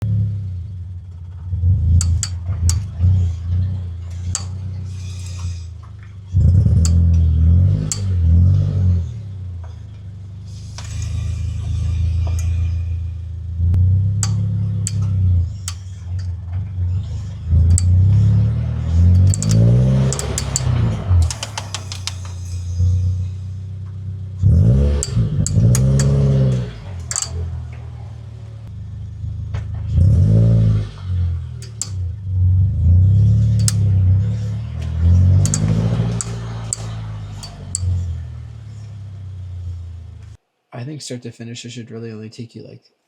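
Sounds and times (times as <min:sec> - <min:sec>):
drivetrain clicks: 0:02.0 - 0:08.2, 0:14.1 - 0:22.9, 0:24.7 - 0:27.9, 0:31.5 - 0:32.2, 0:33.6 - 0:34.0, 0:34.8 - 0:38.3.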